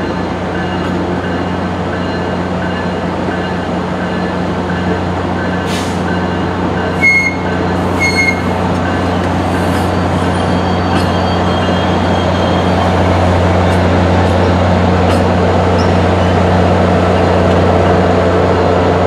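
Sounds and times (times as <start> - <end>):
diesel train engine drone: 0.0 - 19.0
high metallic squeaks: 7.0 - 13.8.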